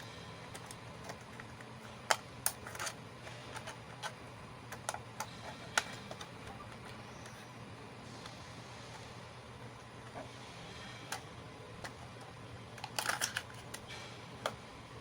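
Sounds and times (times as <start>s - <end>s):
plastic toy pieces clicking: 0.5s - 7.4s, 12.8s - 13.8s.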